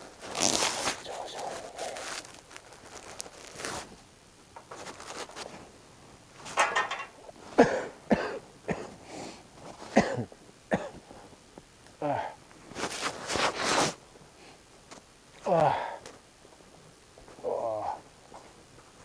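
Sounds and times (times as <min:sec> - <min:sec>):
person coughing: 0:07.6 - 0:08.9, 0:09.9 - 0:11.0.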